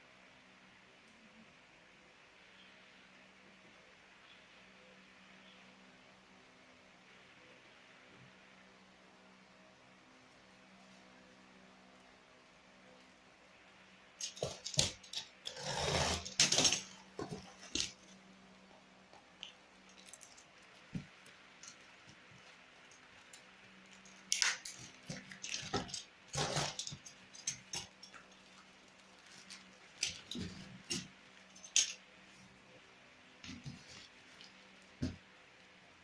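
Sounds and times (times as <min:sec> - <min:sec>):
clicks and clatters of drills: 0:14.2 - 0:17.9.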